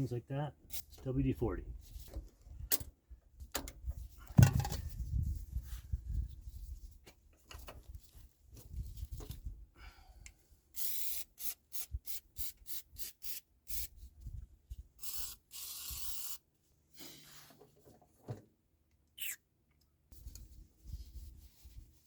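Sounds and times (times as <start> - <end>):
aerosol can spraying squirts: 10.8 - 13.9, 15.0 - 16.4.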